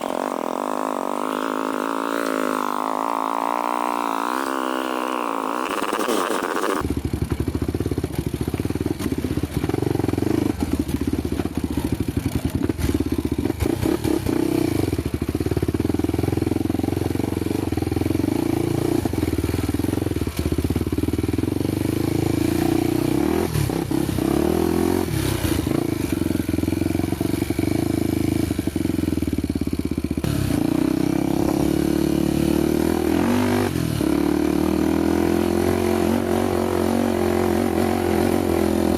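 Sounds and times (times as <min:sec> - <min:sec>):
motorcycle engine running: 0:00.0 - 0:38.9
knocks and rattles from bike: 0:05.7 - 0:22.0.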